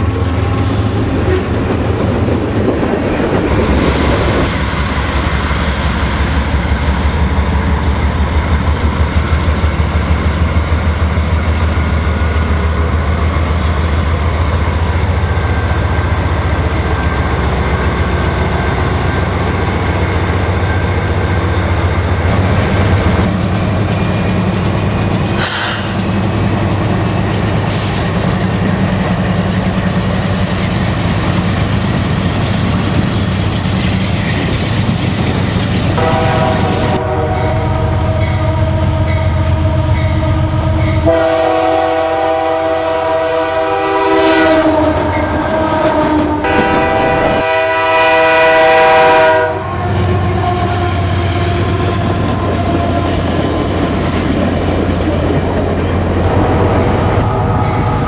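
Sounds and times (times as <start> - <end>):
diesel locomotive engines humming: 0.0 - 58.0
locomotive air horns: 36.0 - 39.9, 41.0 - 50.0.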